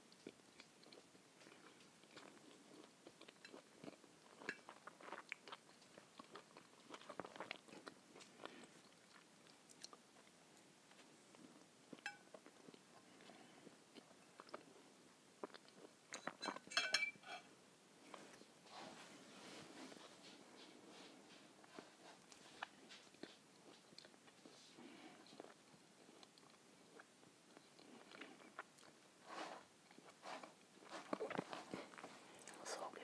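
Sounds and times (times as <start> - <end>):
chewing and mouth sounds: 0.1 - 14.8, 15.4 - 16.7, 21.7 - 24.6, 25.2 - 29.0, 29.8 - 32.6.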